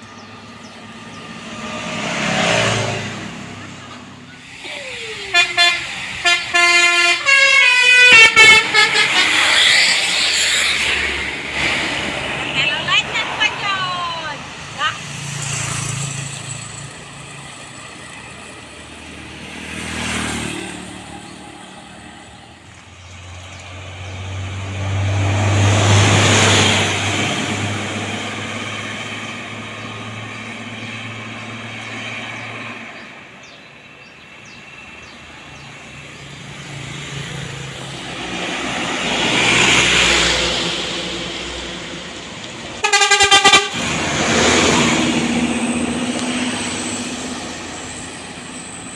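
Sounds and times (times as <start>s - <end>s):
heavy vehicles passing: 0.0s - 48.9s
loud horn blast: 5.2s - 10.1s, 42.8s - 45.6s.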